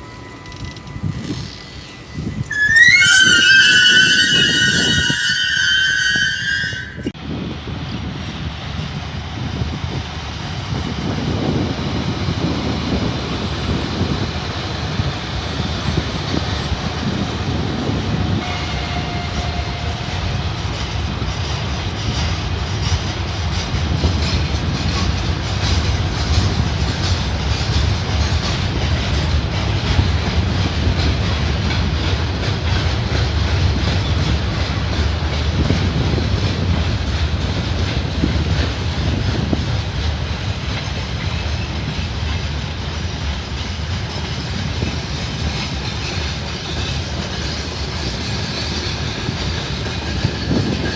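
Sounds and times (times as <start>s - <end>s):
train rumbling past: 0.0s - 50.9s
wheels clicking over rail joints: 19.7s - 50.9s.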